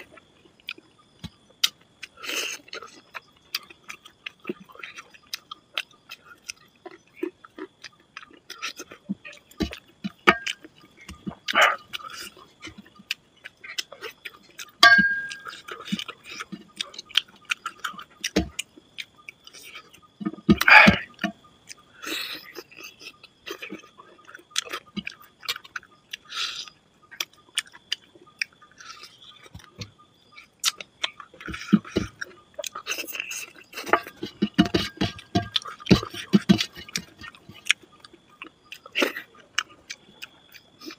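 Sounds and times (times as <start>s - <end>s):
mouth chewing wet smacks: 0.0s - 40.9s
fingers mixing food on steel plate: 6.4s - 19.1s, 30.7s - 40.6s.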